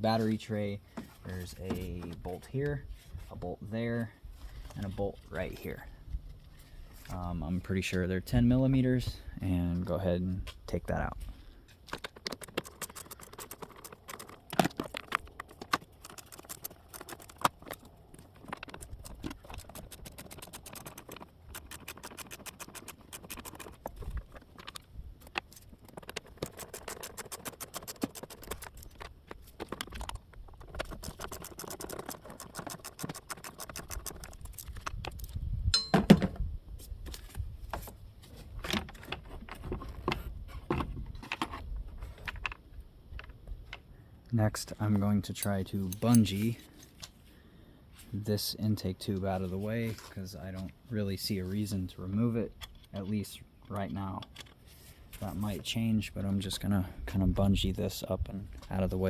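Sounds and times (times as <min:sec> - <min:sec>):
socket ratchet clicking: 0:18.5 - 0:23.8
metallic clinks of tools: 0:35.7 - 0:36.2.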